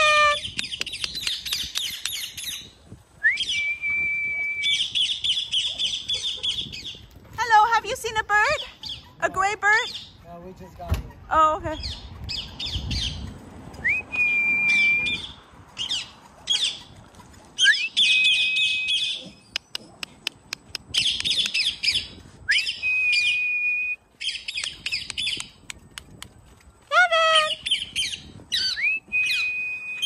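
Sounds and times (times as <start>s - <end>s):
rising whistle: 3.2s - 4.9s, 13.8s - 15.4s, 17.6s - 19.2s, 22.5s - 24.0s, 28.6s - 30.0s
birds squawking and chirping: 4.7s - 7.2s, 8.5s - 13.4s, 14.7s - 19.8s, 27.3s - 28.8s.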